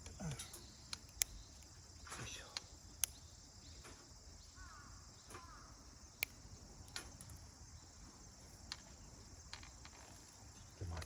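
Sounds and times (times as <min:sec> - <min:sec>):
insects chirring: 0:00.0 - 0:11.0
firewood being handled: 0:06.8 - 0:11.0.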